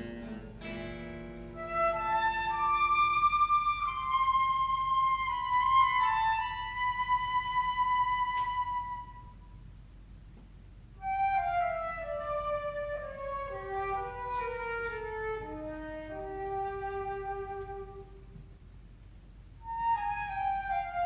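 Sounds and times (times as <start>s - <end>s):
flute playing: 1.5s - 9.6s, 11.0s - 18.3s, 19.6s - 21.0s.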